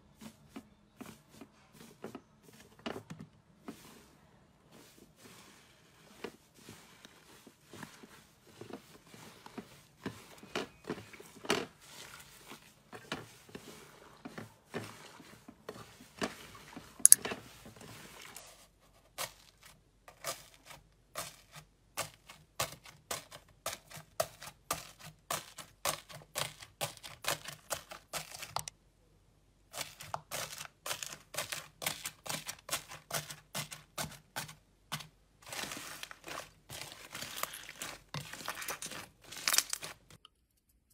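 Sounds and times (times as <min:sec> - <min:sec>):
slime crust crunching: 0:35.0 - 0:40.2.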